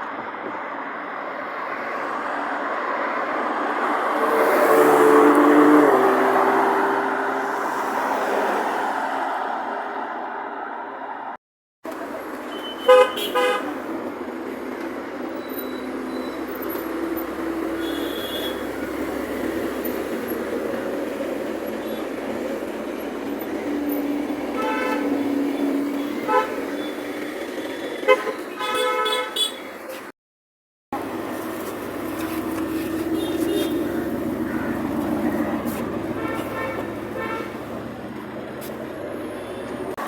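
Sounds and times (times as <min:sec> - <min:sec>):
traffic and engine noise: 0:00.0 - 0:30.2, 0:30.9 - 0:40.0
car horns tooting: 0:12.4 - 0:13.8, 0:17.8 - 0:19.0, 0:24.5 - 0:25.3, 0:25.9 - 0:29.8, 0:32.9 - 0:37.8.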